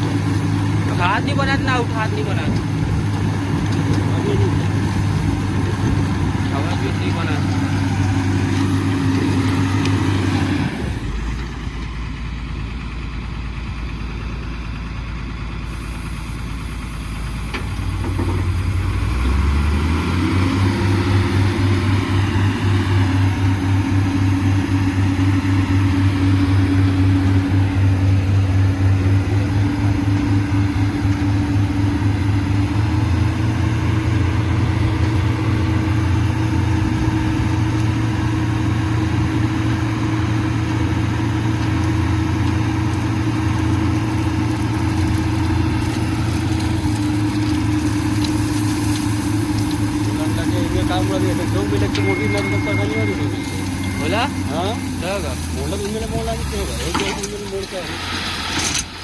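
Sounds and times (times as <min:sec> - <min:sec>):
diesel engine idling and revving: 0:00.0 - 0:59.0.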